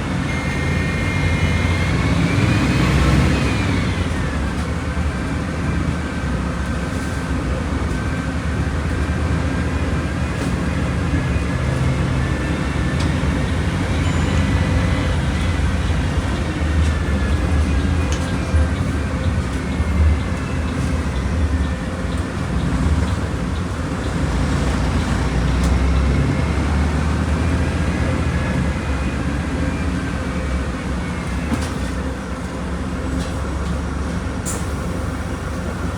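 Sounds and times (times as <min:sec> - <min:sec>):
bus engine rumbling and whining: 0:00.0 - 0:35.9.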